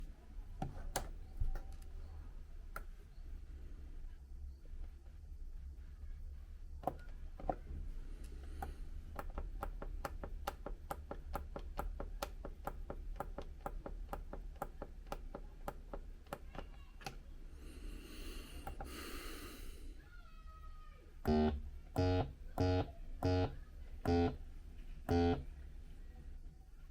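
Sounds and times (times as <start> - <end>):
steady low hum: 21.1 - 26.9.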